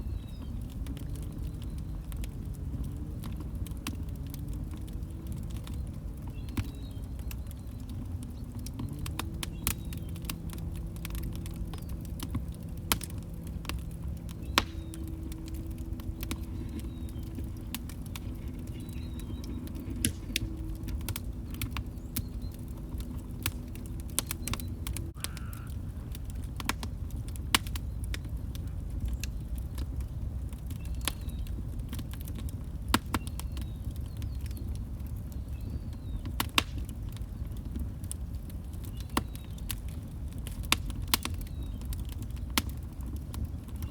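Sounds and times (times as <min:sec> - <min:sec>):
steady low hum: 0:00.0 - 0:30.5
wood fire crackling and popping: 0:00.0 - 0:43.9.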